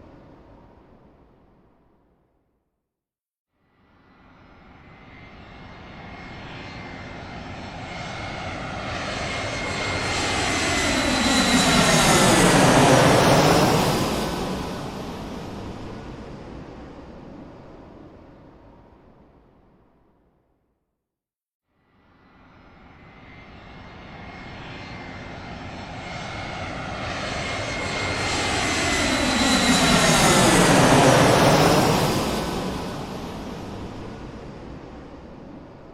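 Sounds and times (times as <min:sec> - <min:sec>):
airplane passing overhead: 0:03.9 - 0:19.2, 0:22.0 - 0:35.9.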